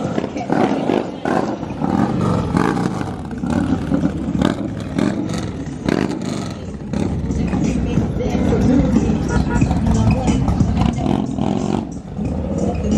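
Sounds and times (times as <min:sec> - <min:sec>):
vehicle engines revving: 0:00.0 - 0:12.9.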